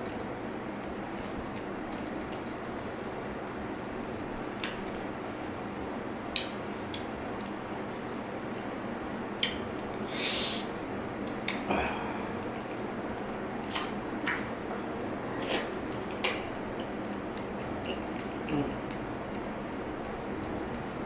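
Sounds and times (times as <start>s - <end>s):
steady background hiss: 3.0s - 20.2s
wet mouth smacks while chewing: 13.7s - 14.4s.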